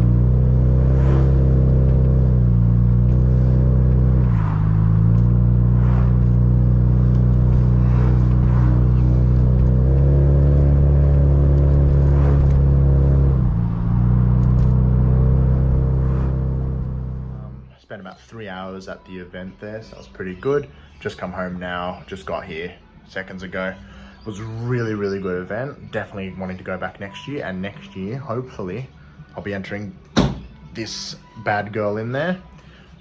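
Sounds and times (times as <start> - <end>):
car engine droning: 0.0 - 17.7.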